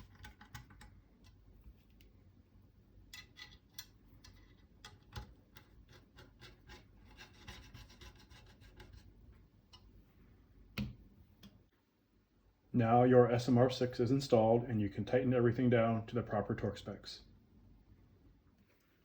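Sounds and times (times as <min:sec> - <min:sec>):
screwdriver clicking and scraping: 0:03.1 - 0:09.0.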